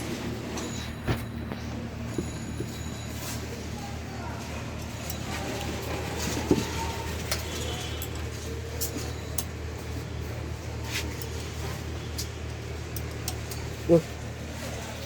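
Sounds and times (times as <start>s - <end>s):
steady low hum: 0.0s - 7.3s.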